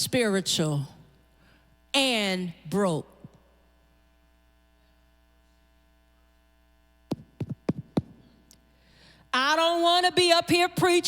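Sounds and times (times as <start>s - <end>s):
electrical mains hum: 0.0s - 11.0s
sharp knocks or claps: 7.1s - 8.2s.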